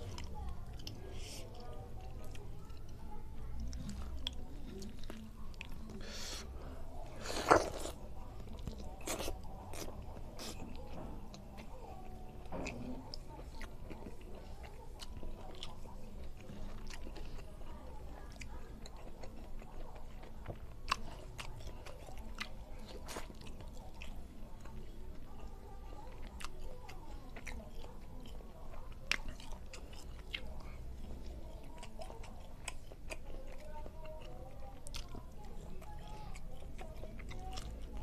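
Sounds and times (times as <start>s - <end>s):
person chewing and biting food: 7.2s - 8.0s.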